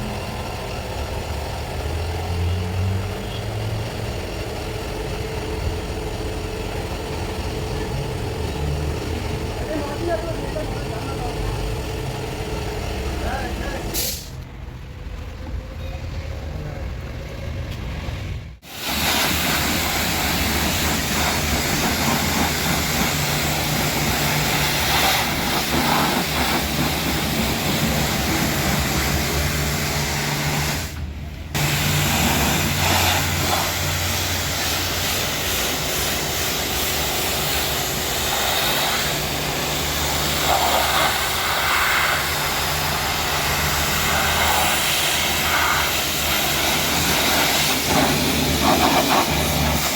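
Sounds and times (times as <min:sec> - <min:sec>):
pressure washer spraying: 0:18.6 - 0:31.0, 0:31.6 - 0:49.9.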